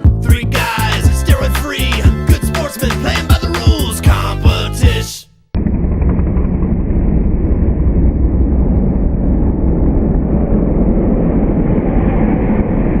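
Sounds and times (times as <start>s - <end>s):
low rumbling noise: 5.5s - 13.0s.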